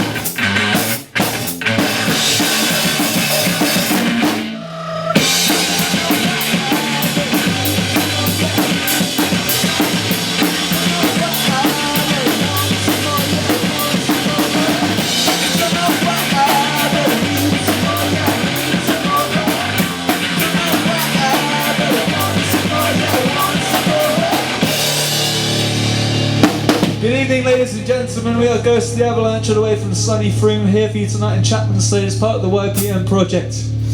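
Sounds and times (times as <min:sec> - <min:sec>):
drum kit cymbal beat: 0:00.0 - 0:04.6, 0:05.2 - 0:27.5
instrumental rock band: 0:00.0 - 0:28.2
pulsing bass notes: 0:00.0 - 0:33.9.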